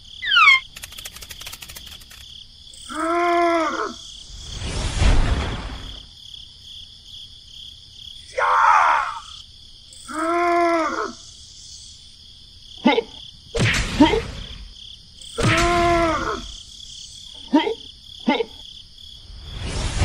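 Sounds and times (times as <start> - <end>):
crickets chirring: 0.0 - 19.8
cartoon groaning voice: 2.9 - 4.0, 10.1 - 11.2, 15.4 - 16.5.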